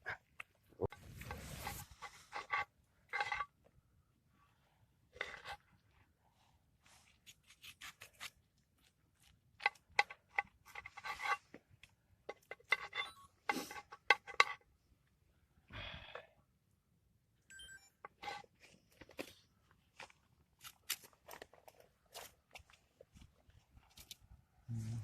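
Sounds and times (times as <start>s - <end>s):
knife scraping metal pot: 0.9s - 3.5s, 10.0s - 11.5s.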